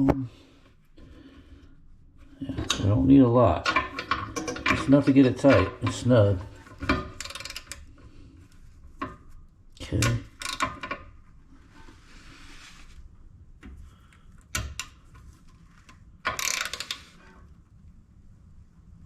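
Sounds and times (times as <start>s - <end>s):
scraping rub on toilet tank: 11.6s - 13.2s.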